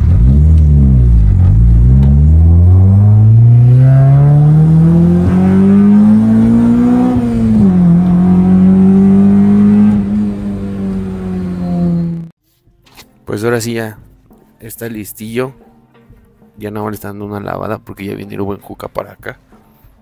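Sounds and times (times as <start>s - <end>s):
car engine revving from inside cabin: 0.0s - 12.3s.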